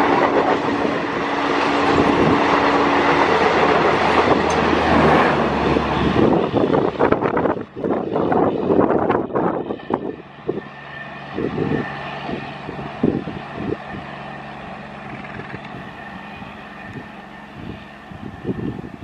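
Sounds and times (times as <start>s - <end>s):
train wheels rumbling on rails: 0.0s - 7.7s.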